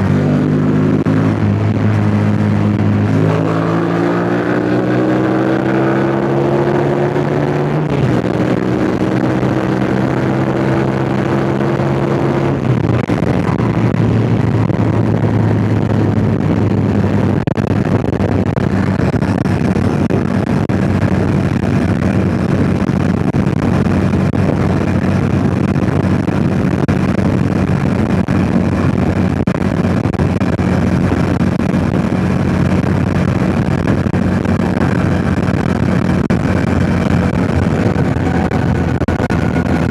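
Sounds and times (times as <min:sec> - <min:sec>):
motorcycle engine running: 0:00.0 - 0:39.9
wind on microphone: 0:00.0 - 0:39.9.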